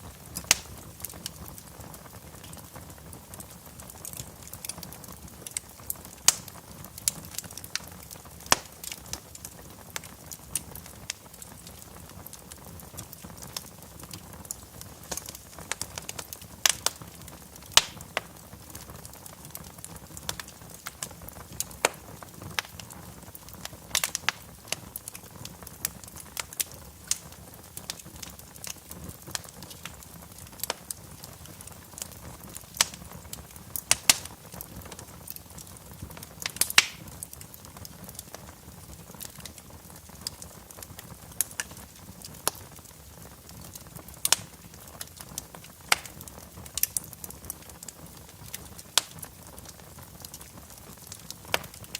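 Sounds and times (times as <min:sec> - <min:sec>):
rush of flame: 0:00.0 - 0:10.1, 0:26.7 - 0:40.0
fire crackling and popping: 0:00.0 - 0:51.9.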